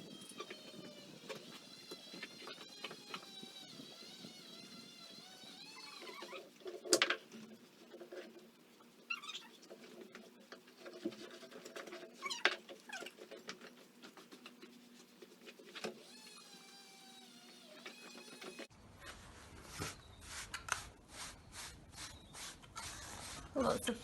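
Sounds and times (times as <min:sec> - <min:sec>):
brushing pony coat: 0:18.1 - 0:24.0.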